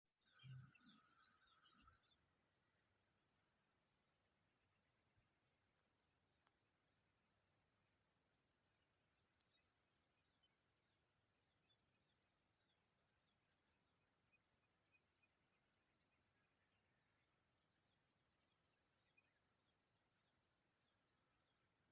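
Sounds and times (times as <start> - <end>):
bird chirps: 0.2 - 2.4
insect chorus: 0.2 - 21.9.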